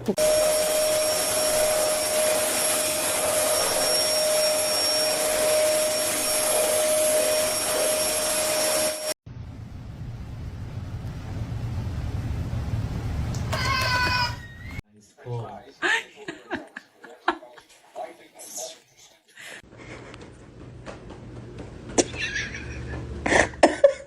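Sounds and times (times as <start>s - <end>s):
low hum: 9.3s - 13.5s.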